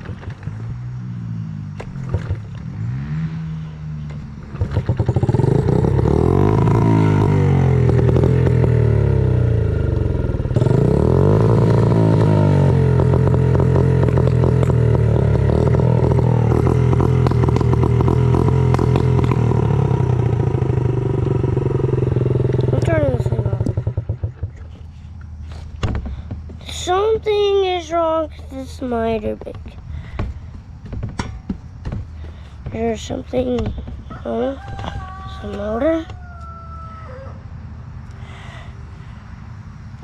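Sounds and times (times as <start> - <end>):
dirt bike engine revving: 0.0 - 36.2
person talking: 22.6 - 23.7, 26.6 - 29.8, 32.6 - 36.1.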